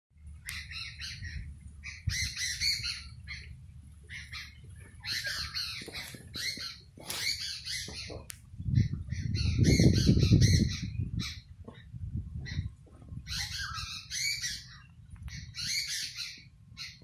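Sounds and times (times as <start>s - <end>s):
small birds chirping: 0.2s - 17.0s
low rumble: 7.9s - 14.0s.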